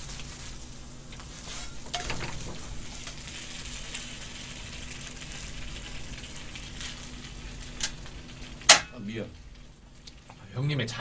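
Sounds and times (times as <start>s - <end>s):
pancake sizzling in oil: 0.0s - 10.3s.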